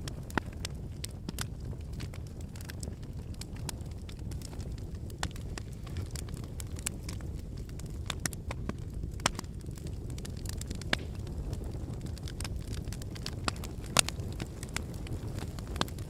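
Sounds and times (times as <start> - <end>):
fire crackling: 0.0 - 16.0
pops and snaps of fire: 0.0 - 16.0.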